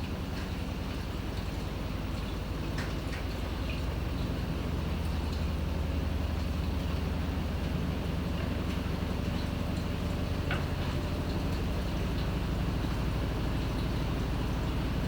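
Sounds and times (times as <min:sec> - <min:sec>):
washing machine drone: 0:00.0 - 0:15.0.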